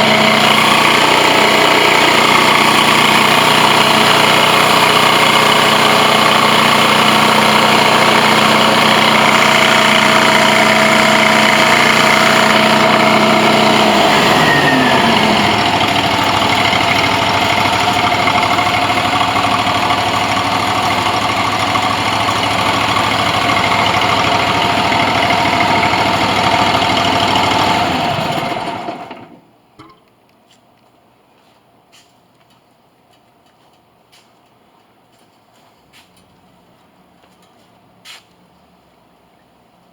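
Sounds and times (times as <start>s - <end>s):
extractor engine running: 0.0s - 30.0s.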